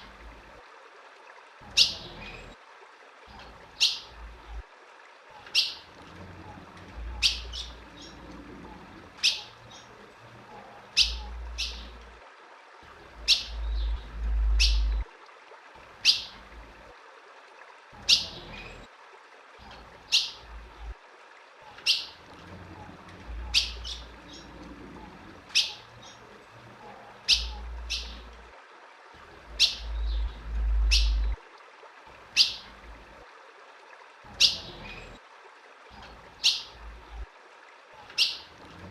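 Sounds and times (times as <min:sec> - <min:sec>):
bird chip calls: 0:05.4 - 0:05.8, 0:07.1 - 0:08.2, 0:09.2 - 0:09.9, 0:10.9 - 0:12.0, 0:13.2 - 0:15.0, 0:23.4 - 0:24.5, 0:25.5 - 0:26.2, 0:27.2 - 0:28.3, 0:29.6 - 0:31.4, 0:32.4 - 0:32.7, 0:36.0 - 0:36.8, 0:38.1 - 0:38.5
low rumble: 0:13.5 - 0:15.1, 0:29.8 - 0:31.4.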